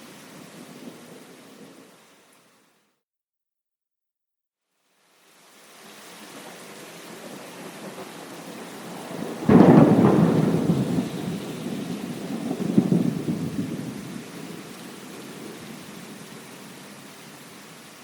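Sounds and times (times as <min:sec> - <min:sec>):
rain hiss: 0:00.0 - 0:02.9, 0:04.7 - 0:18.0
thunder rumbling: 0:07.3 - 0:16.1.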